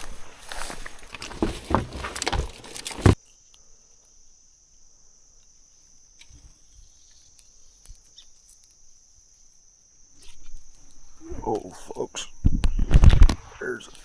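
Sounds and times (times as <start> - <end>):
footsteps crunching through brush: 0.0 - 3.2
insects chirping: 0.0 - 14.0.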